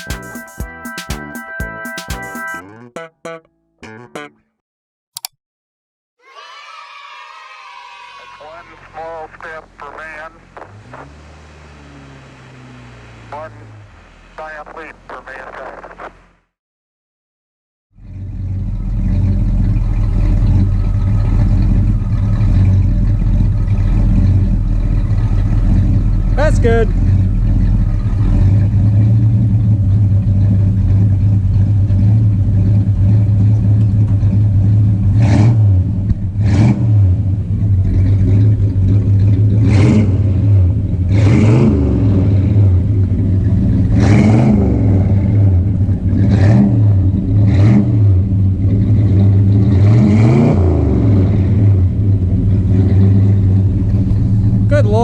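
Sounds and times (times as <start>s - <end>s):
car engine idling: 8.6s - 15.4s, 18.0s - 35.2s, 37.1s - 41.2s, 42.3s - 44.1s, 44.7s - 49.8s, 51.1s - 55.0s
engine throttle blips: 8.8s - 16.5s, 18.0s - 55.0s.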